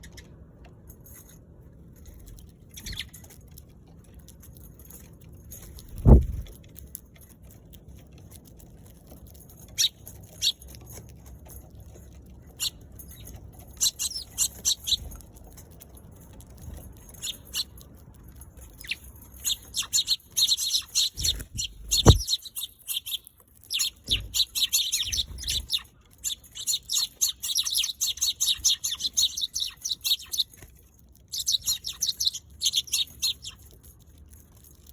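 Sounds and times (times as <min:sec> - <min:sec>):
sparrows chirping: 0:02.0 - 0:03.4, 0:09.6 - 0:34.9
loud low thumps: 0:06.0 - 0:06.5.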